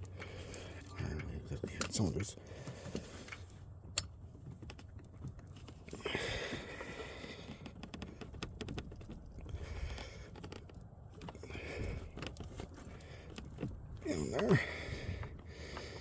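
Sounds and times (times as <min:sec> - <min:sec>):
parts clicking and scraping: 0:00.0 - 0:16.0.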